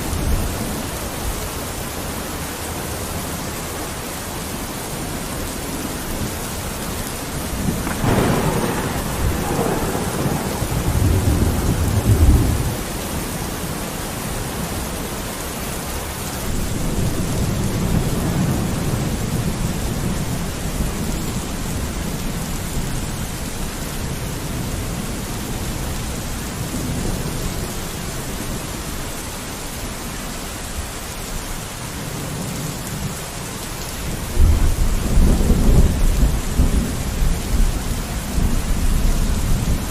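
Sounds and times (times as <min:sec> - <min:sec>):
rain on a window: 0:00.0 - 0:39.9
rolling thunder: 0:07.4 - 0:14.8.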